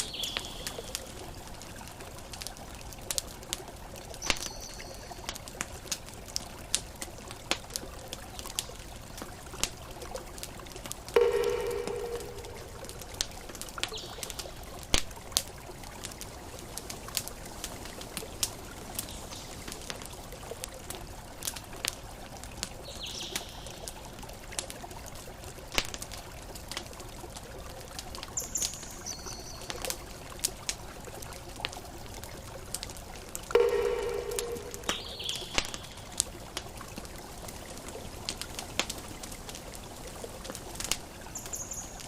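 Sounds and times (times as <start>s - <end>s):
campfire crackling and popping: 0.0s - 42.0s
short high chirps: 11.2s - 13.0s, 33.6s - 35.9s.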